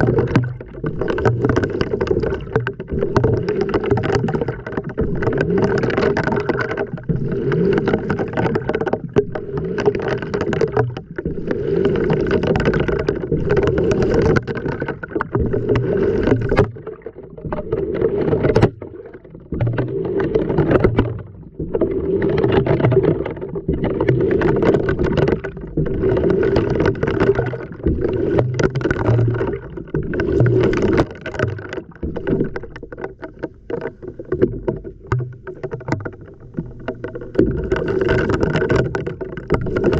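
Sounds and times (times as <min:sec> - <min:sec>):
water sloshing in washing machine drum: 0:00.0 - 0:39.9.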